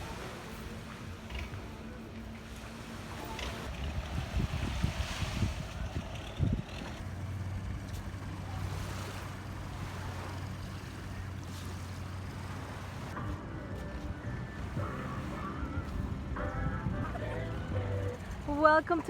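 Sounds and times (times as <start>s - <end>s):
water rushing past hull: 0.0s - 13.2s
boat engine humming: 0.0s - 19.0s
wind on microphone: 3.6s - 7.0s, 14.1s - 18.6s.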